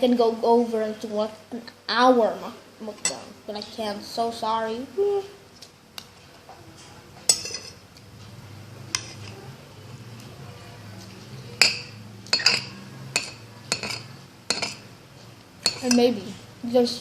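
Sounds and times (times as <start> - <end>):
cutlery clinking on a plate: 7.2 - 7.8, 11.6 - 14.8.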